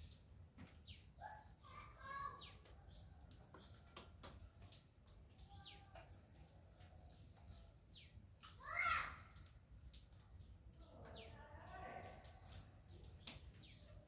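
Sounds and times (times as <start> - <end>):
birds chirping: 10.2 - 14.0.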